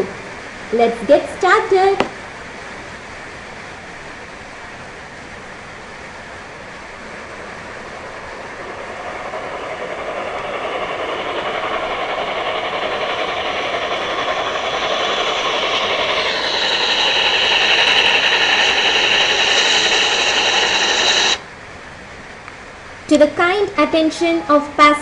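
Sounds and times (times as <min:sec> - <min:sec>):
train approaching: 0:00.0 - 0:25.0
high-pitched whine: 0:06.5 - 0:21.4.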